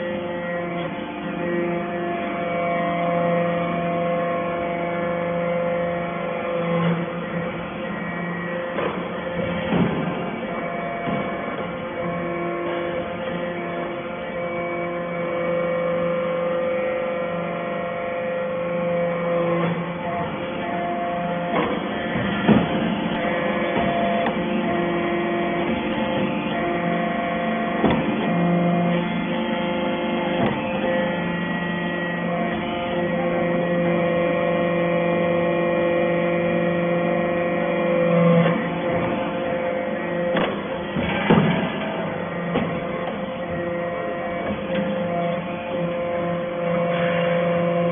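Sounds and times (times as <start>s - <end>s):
baler machine hum: 0.0s - 47.9s
sharp knocks: 21.5s - 23.1s, 27.8s - 28.3s, 40.3s - 43.2s.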